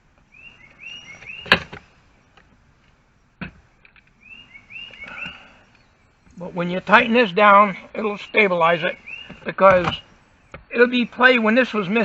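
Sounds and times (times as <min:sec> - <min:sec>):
songbird chirping: 0:00.0 - 0:12.0
sharp knocks: 0:09.2 - 0:10.7.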